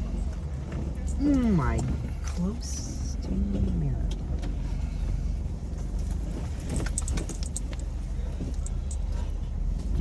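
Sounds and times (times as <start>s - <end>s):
car engine running low: 0.0s - 10.0s
light clinks and rattles: 4.1s - 9.7s.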